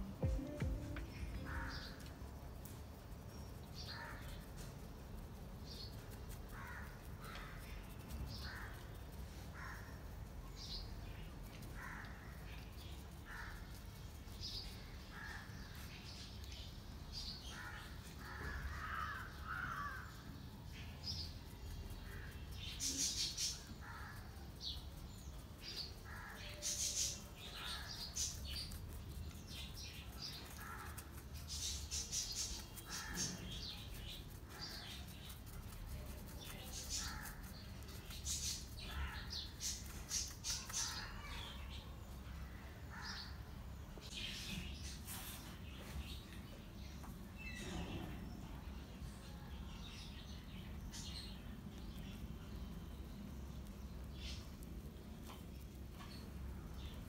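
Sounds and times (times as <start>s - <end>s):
low steady hum: 0.0s - 6.0s.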